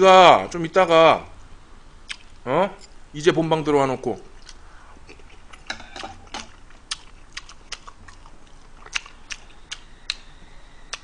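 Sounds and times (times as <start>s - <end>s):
wet chewing smacks: 4.3s - 10.3s.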